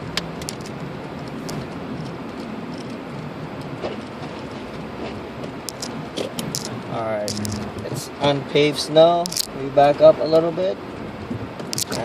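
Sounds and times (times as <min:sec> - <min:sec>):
tyre and road noise: 0:00.0 - 0:12.0.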